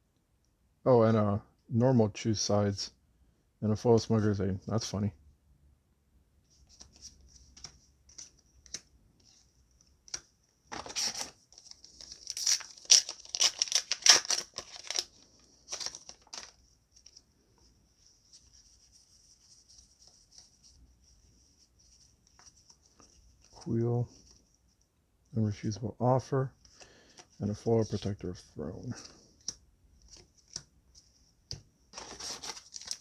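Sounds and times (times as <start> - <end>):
foil wrapper ripping and crinkling: 10.7 - 16.6, 32.0 - 33.0.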